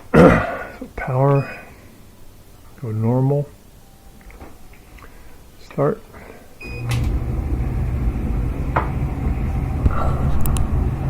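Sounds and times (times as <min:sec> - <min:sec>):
dryer motor rumbling and humming: 0:06.7 - 0:11.0.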